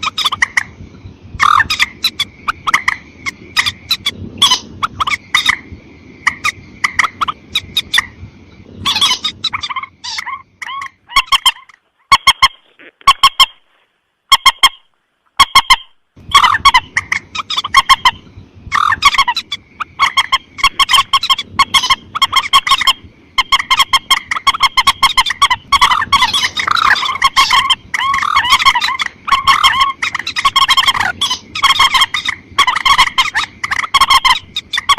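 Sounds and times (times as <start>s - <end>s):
rail bird calling sharp notes: 8.8s - 13.7s, 14.3s - 34.9s.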